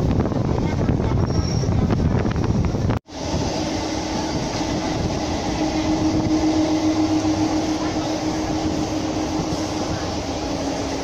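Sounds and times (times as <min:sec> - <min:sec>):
rushing air: 0:00.0 - 0:11.0
train wheels roaring on rails: 0:00.0 - 0:11.0
steady hum: 0:03.1 - 0:11.0.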